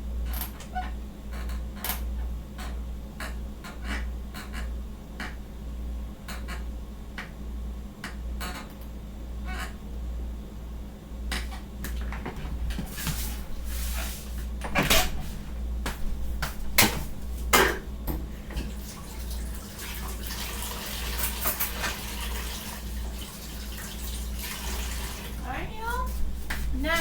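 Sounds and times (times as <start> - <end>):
steady low hum: 0.0 - 19.7, 25.0 - 27.0
dishes and utensils clattering: 20.9 - 22.1.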